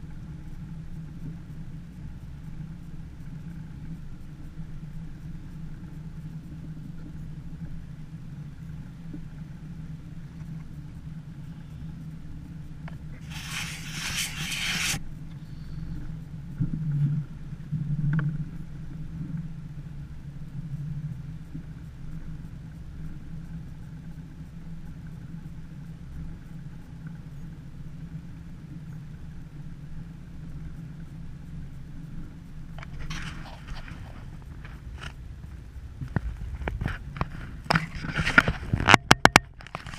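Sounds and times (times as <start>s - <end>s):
motor running at low speed: 0.0s - 39.9s
loud hiss: 13.2s - 15.0s.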